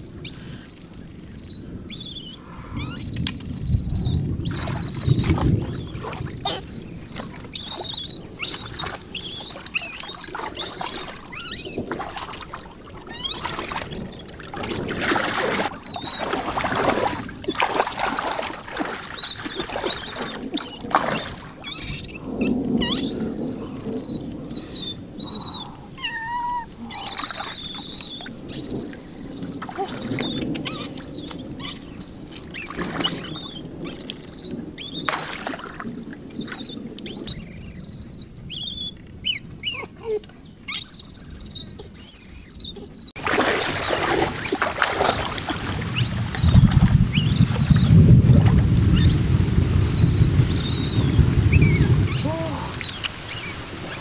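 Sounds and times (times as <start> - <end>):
birds chirping: 0.0 - 48.1, 48.9 - 54.0.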